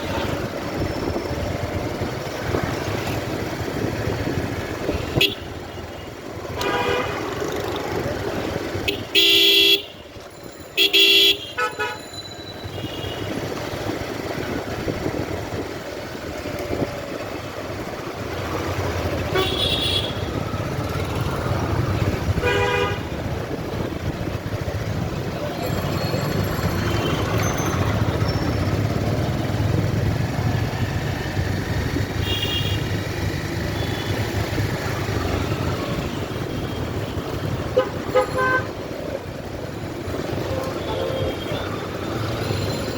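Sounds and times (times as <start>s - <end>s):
vehicle engines running: 0.0s - 10.8s, 11.4s - 42.9s
car horns honking: 4.9s - 5.6s, 8.8s - 10.0s, 10.8s - 13.4s, 19.2s - 20.4s, 22.4s - 23.2s, 32.2s - 33.0s, 37.5s - 38.7s.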